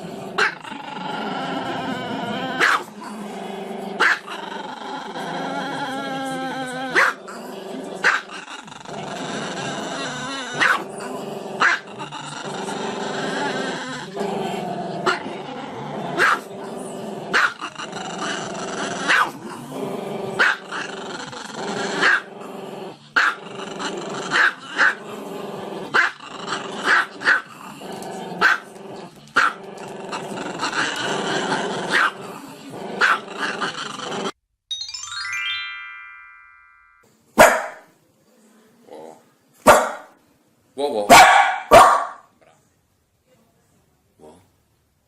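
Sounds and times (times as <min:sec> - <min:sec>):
dog growling: 0:00.0 - 0:34.4
dog barking: 0:02.6 - 0:02.9, 0:04.0 - 0:04.3, 0:07.0 - 0:07.2, 0:10.6 - 0:10.8, 0:11.6 - 0:11.8, 0:16.2 - 0:16.5, 0:19.1 - 0:19.4, 0:20.4 - 0:20.6, 0:22.0 - 0:22.2, 0:28.4 - 0:28.6, 0:31.9 - 0:32.2, 0:33.0 - 0:33.2, 0:37.4 - 0:37.9, 0:39.6 - 0:40.2, 0:41.1 - 0:42.3.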